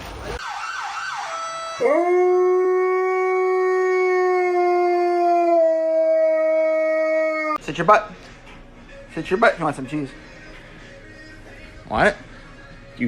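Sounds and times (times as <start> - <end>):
dog howling: 1.8 - 7.6.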